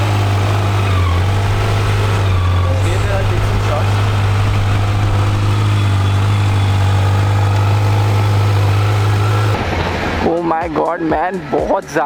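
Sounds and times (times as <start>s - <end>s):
motorcycle engine running steadily: 0.0s - 9.6s.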